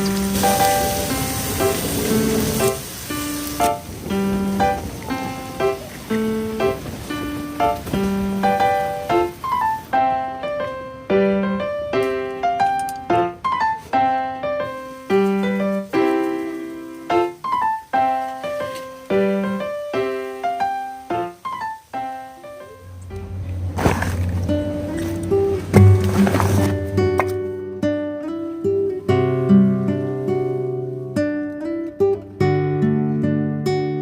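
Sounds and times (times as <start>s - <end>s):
slow piano melody: 0.0s - 34.0s
low swelling sound: 22.8s - 27.9s.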